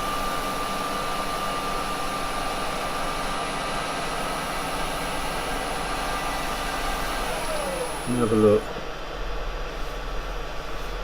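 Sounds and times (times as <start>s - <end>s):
motor hum: 4.9s - 8.9s
wood lathe whining: 5.8s - 8.7s.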